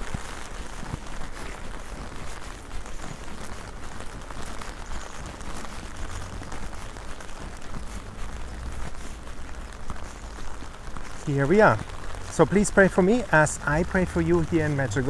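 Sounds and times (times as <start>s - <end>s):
strong rain falling: 0.0s - 15.0s.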